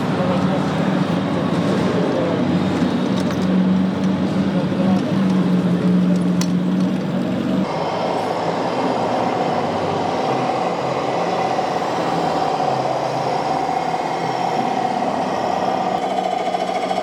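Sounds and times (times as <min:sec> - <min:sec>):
rattling clatter: 0:02.7 - 0:03.6.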